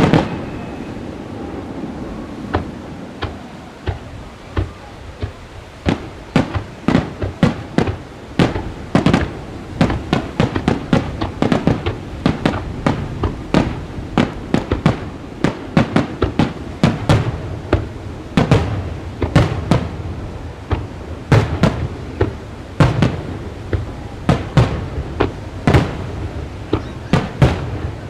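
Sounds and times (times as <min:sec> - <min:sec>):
fireworks bursting with bangs: 0:00.0 - 0:28.0.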